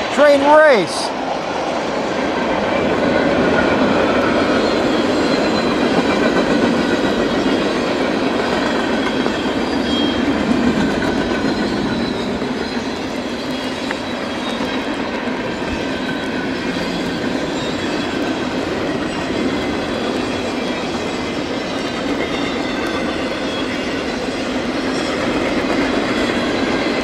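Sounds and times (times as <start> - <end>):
train wheels rumbling on rail: 0.0 - 27.0
high-pitched wheel squeal: 4.3 - 6.1, 9.0 - 10.4, 11.2 - 15.0.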